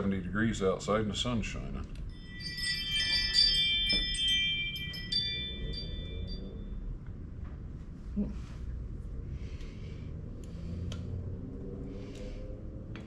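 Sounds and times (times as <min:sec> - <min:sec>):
wind chime ringing: 0:02.1 - 0:07.1.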